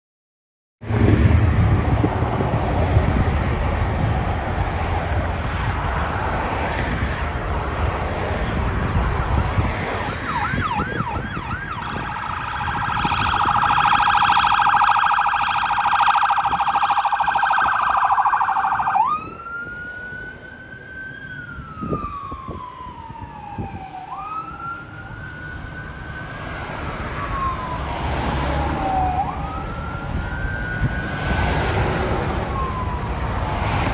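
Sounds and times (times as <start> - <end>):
heavy low engine rumble: 0.8 - 28.0
siren wail rising and falling: 8.6 - 33.9
fast pulsing high siren tone: 10.0 - 31.4, 32.4 - 33.6
siren yelp sweeps: 10.0 - 33.9.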